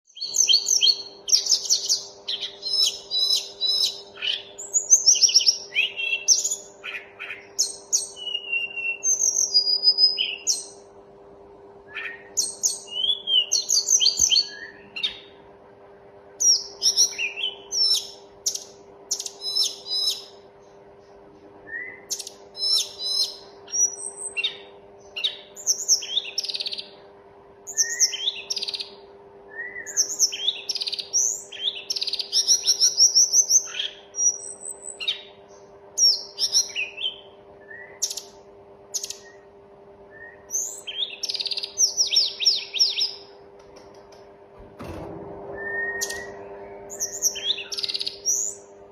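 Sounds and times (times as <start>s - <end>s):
songbird singing: 0.0s - 11.0s, 11.6s - 44.3s, 44.9s - 48.9s
faint steady hum: 0.1s - 48.9s.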